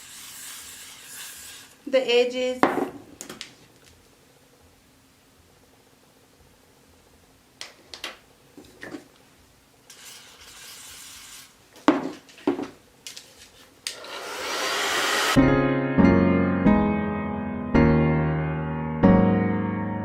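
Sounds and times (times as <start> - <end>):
aerosol spray hiss: 0.0 - 2.0, 9.9 - 11.6, 13.9 - 15.4
rushing noise: 14.0 - 15.4.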